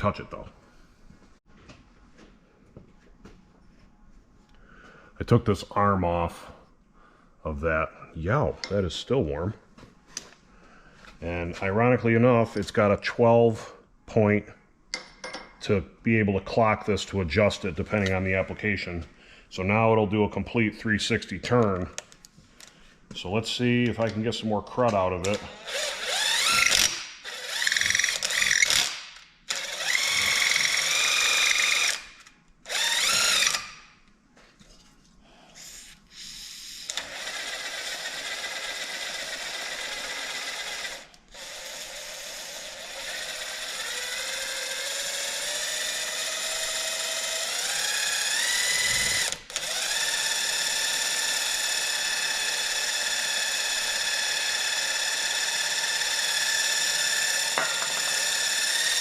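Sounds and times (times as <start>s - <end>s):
power tool motor whining: 25.4s - 33.8s, 36.1s - 59.0s.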